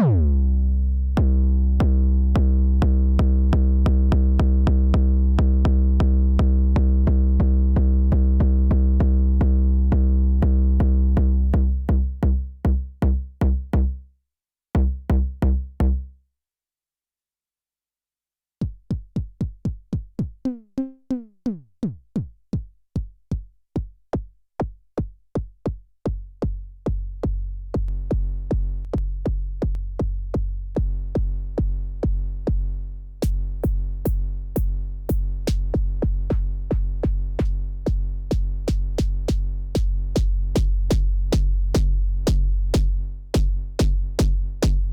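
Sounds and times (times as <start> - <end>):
electronic bass drum kicks: 18.6 - 20.4, 22.2 - 44.9.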